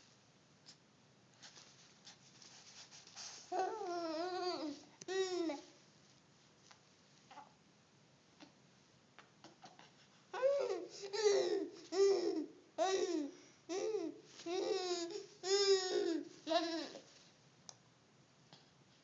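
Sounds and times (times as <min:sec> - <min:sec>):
baby babbling: 0:03.5 - 0:05.7, 0:09.4 - 0:17.1.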